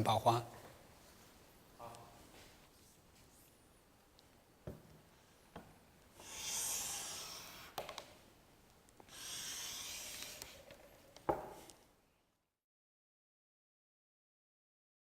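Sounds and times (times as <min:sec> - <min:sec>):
hand plane hissing along board: 0:06.2 - 0:07.8, 0:09.1 - 0:10.7.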